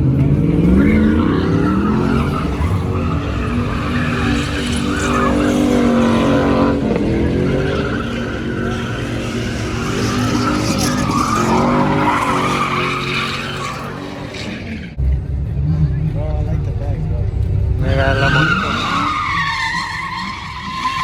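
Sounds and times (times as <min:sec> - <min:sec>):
car engine at high revs: 0:00.0 - 0:15.2
tyres squealing: 0:00.4 - 0:14.9, 0:17.8 - 0:21.0.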